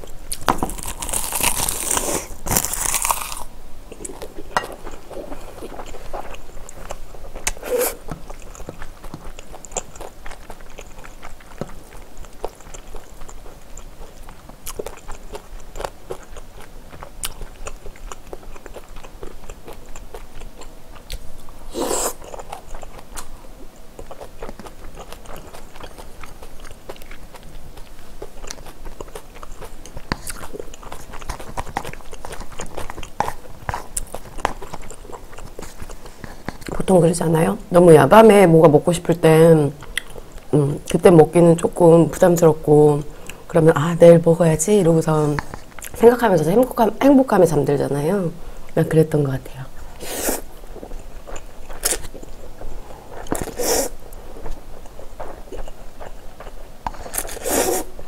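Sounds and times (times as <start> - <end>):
chewing and crunching: 0.0 - 37.2, 49.8 - 58.0.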